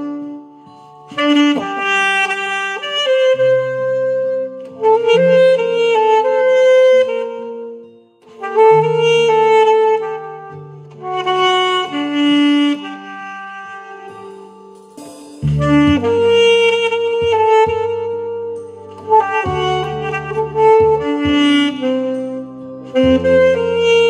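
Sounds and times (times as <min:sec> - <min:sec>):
saxophone playing slow melody: 0:00.0 - 0:24.0
sustained low bass notes: 0:15.4 - 0:24.0.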